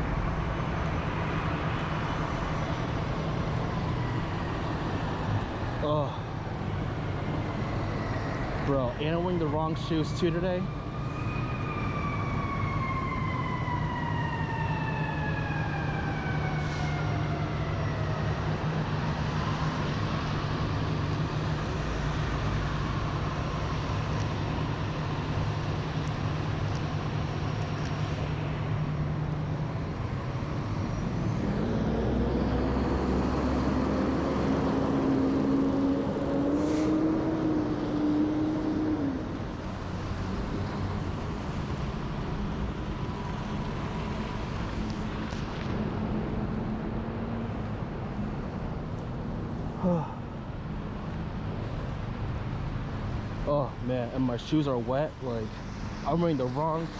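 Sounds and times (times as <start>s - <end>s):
engines running steadily: 0.0s - 56.9s
siren falling in pitch: 10.7s - 18.2s
vehicle engine rising in pitch: 30.5s - 39.6s.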